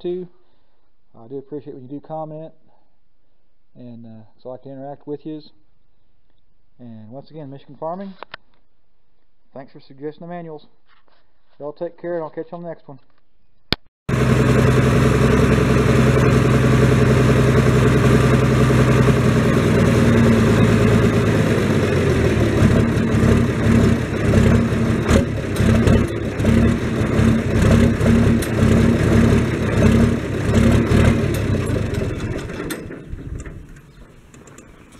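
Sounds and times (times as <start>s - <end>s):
engine running with pulsing hum: 14.1s - 34.9s.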